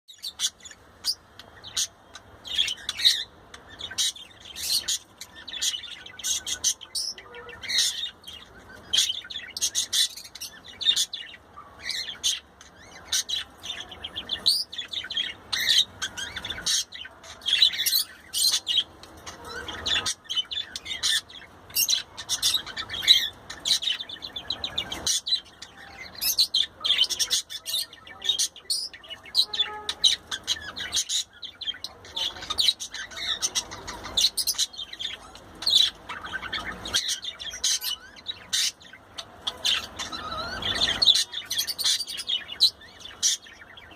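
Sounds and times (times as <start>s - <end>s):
budgerigar chattering and warbling: 8.9s - 43.6s.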